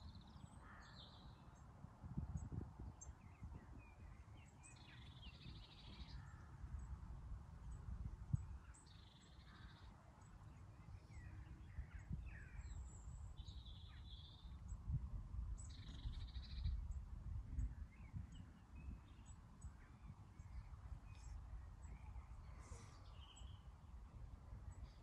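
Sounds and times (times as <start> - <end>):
faint bird chirps: 2.3 - 6.9, 7.7 - 14.9, 15.6 - 23.9.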